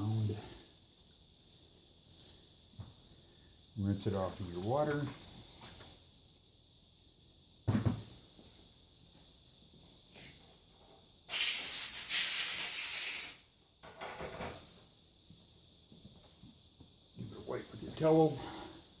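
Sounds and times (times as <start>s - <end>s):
water hissing: 11.3s - 13.4s.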